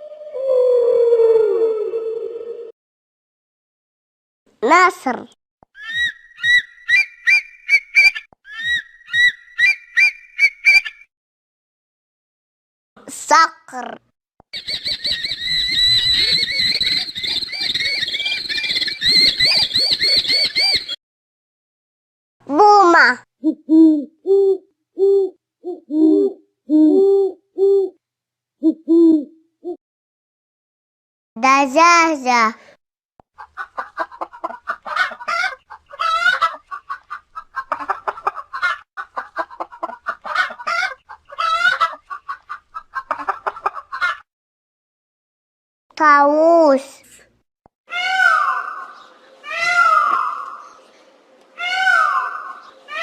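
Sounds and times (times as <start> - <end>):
falcon shrill cries: 5.8 - 10.9, 14.6 - 21.0, 47.9 - 50.6, 51.6 - 53.0
hen clucking and squawking: 14.5 - 21.0, 33.4 - 44.2.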